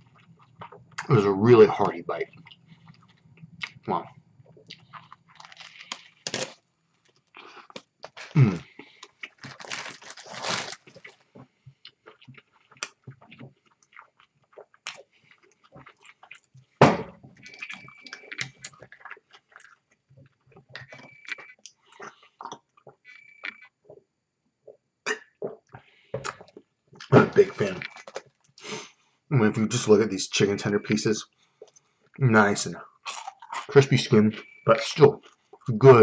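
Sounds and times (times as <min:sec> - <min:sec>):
chewing crunchy food: 0:00.0 - 0:16.8, 0:17.4 - 0:24.0, 0:25.3 - 0:28.7, 0:32.8 - 0:35.8.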